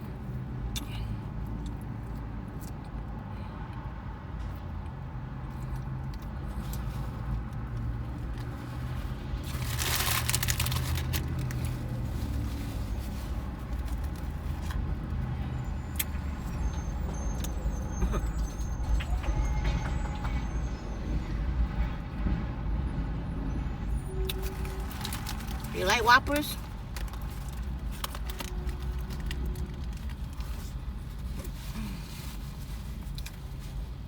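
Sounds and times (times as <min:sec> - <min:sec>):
paper wrapper crinkling: 0:09.4 - 0:14.8, 0:24.4 - 0:25.8.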